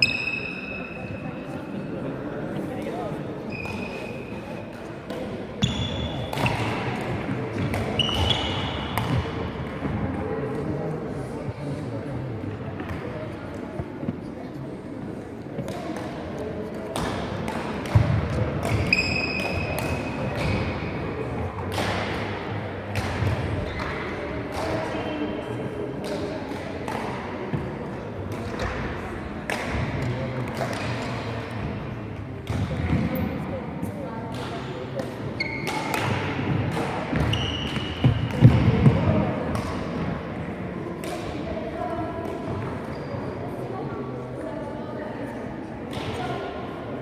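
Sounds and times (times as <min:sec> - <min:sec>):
voices in a hall: 0:00.0 - 0:47.0
shoes squeaking on floor: 0:03.4 - 0:04.7, 0:07.9 - 0:08.9, 0:18.7 - 0:19.7, 0:35.4 - 0:35.9, 0:37.2 - 0:38.3, 0:42.9 - 0:43.4
rackets hitting shuttlecock: 0:03.5 - 0:10.6, 0:15.6 - 0:31.8, 0:32.4 - 0:33.3, 0:34.3 - 0:40.2, 0:41.0 - 0:41.5, 0:45.9 - 0:46.5.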